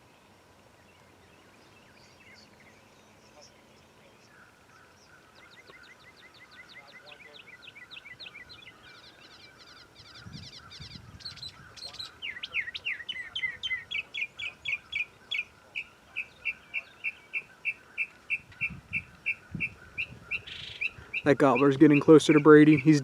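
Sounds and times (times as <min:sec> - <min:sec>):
bird chirping: 0:00.0 - 0:23.0
songbird whistled notes: 0:05.3 - 0:23.0.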